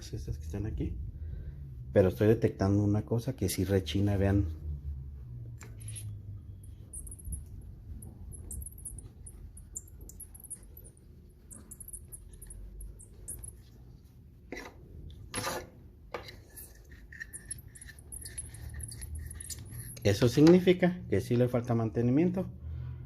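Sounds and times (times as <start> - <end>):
fan scraping: 3.7 - 20.4
cooling fan squeaking: 5.1 - 14.2, 16.6 - 20.4.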